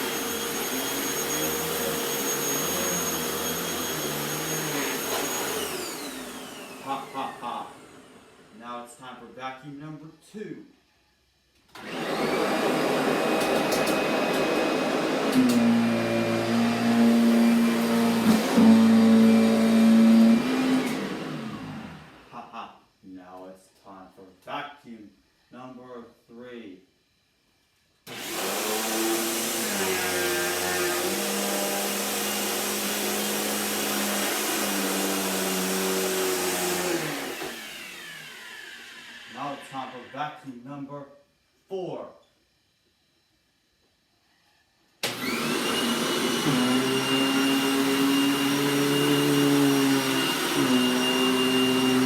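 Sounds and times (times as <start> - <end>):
vacuum cleaner whirring: 0.0 - 8.7, 11.6 - 22.4, 28.0 - 40.4, 45.0 - 52.0.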